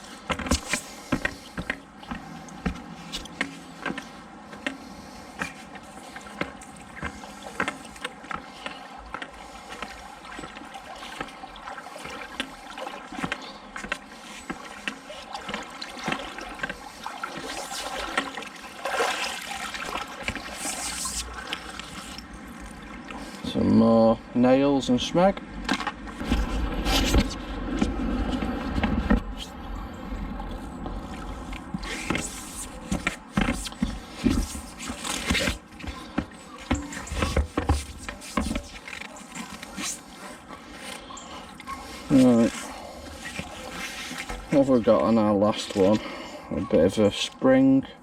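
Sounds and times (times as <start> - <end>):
water splashing from wading: 0.0 - 23.4.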